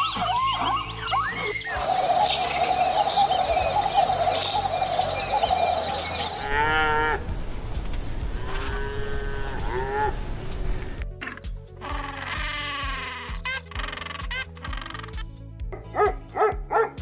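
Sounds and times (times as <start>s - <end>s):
cattle mooing: 6.4s - 7.3s, 8.4s - 11.0s
background hiss: 6.6s - 11.0s.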